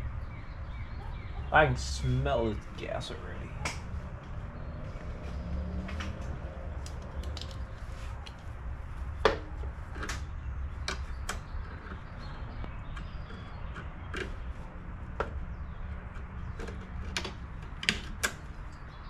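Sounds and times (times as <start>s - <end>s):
hand tools clicking and tapping: 9.3s - 18.9s.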